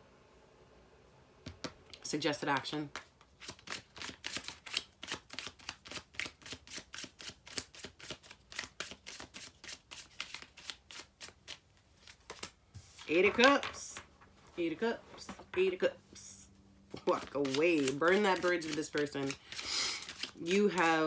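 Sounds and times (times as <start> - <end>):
cards being shuffled: 1.5 - 14.0, 17.0 - 21.0.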